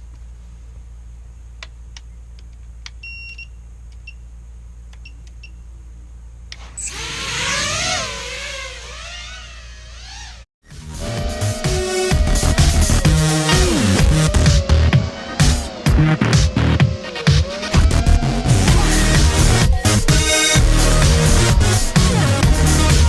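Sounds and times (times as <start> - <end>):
quadcopter motors whining: 6.6 - 20.6.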